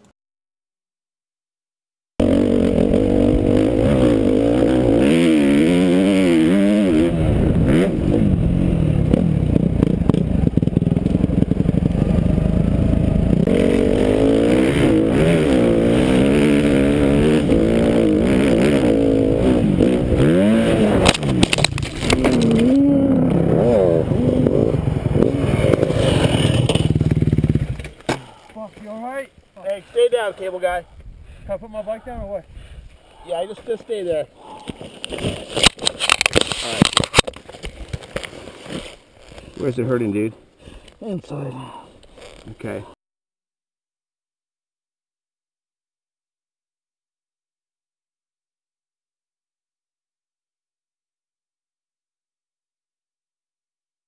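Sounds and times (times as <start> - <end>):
dirt bike engine revving: 2.2 - 28.0.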